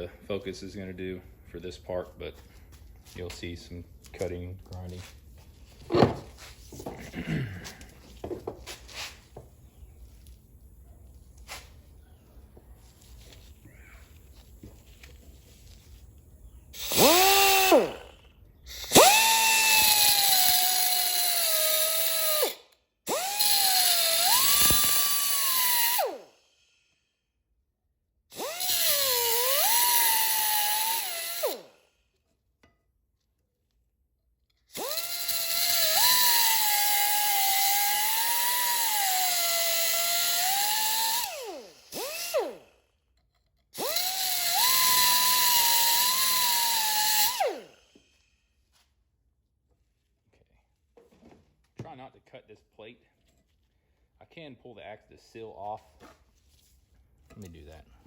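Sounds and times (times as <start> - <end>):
grinder whining: 2.6 - 26.6, 28.3 - 31.9, 34.5 - 48.3.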